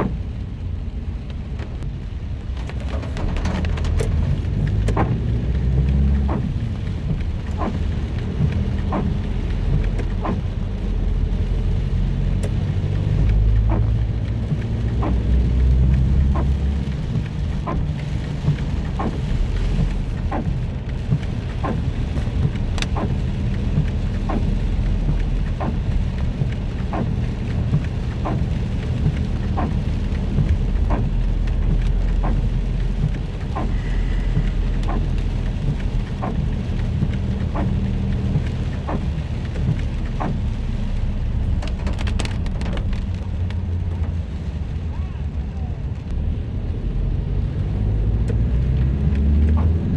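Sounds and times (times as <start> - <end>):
car engine and road rumble: 0.0 - 49.9
rain on a car: 0.0 - 49.9
windscreen wipers ticking: 0.0 - 49.9.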